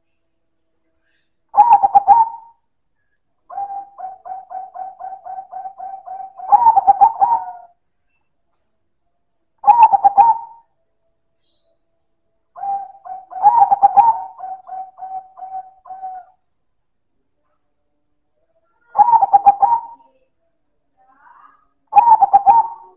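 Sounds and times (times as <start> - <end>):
dove cooing: 1.6 - 2.6, 3.5 - 7.8, 9.6 - 10.6, 12.6 - 16.4, 18.8 - 20.1, 21.9 - 22.9.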